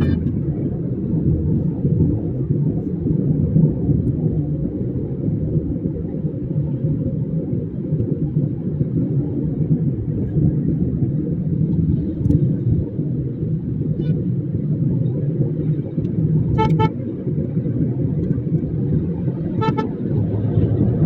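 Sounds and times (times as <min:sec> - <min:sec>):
vehicle road and wind noise: 0:00.0 - 0:21.0.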